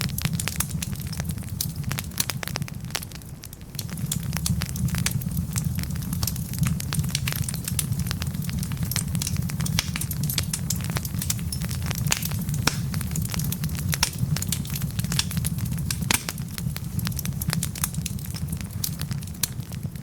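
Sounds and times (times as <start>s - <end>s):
burning logs crackling and popping: 0.0s - 20.0s
low rumble of flames: 0.0s - 20.0s.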